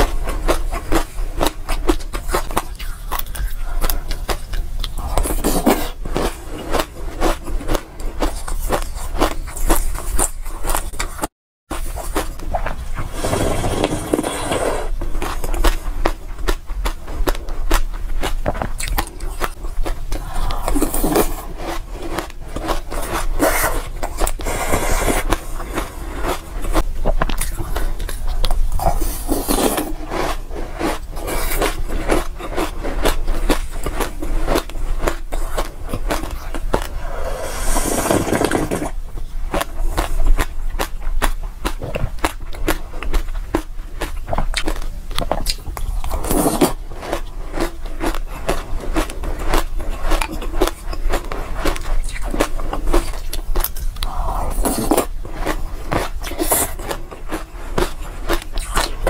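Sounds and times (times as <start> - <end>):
crunching and chewing seeds: 0.0 - 59.0.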